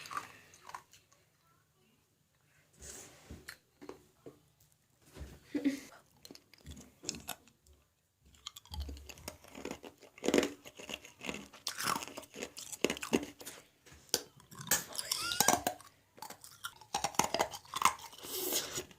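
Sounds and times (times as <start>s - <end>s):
ice being crunched and chewed: 8.3s - 18.9s.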